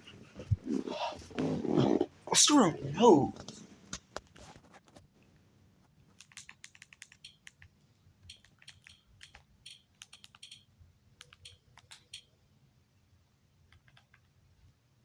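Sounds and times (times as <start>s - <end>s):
typing on computer keyboard: 6.1s - 12.3s, 13.7s - 14.3s.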